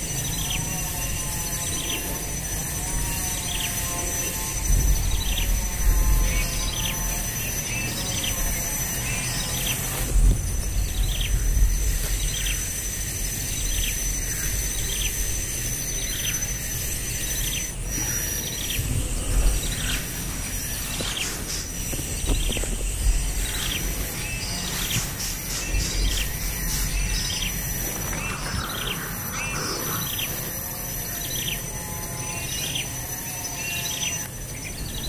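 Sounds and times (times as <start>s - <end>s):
high-pitched whine: 0.0s - 35.0s
low rumble: 17.8s - 30.6s.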